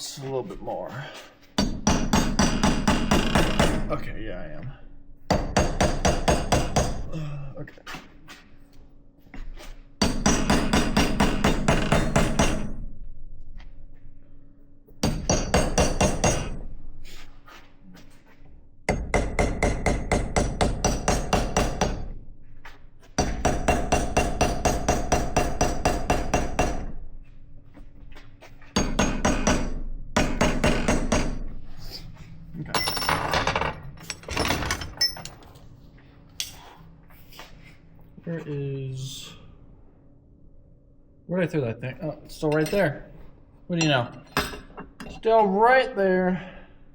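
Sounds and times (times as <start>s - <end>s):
hammer striking steel: 5.3s - 7.1s, 15.0s - 16.7s, 18.9s - 22.1s, 23.2s - 27.0s.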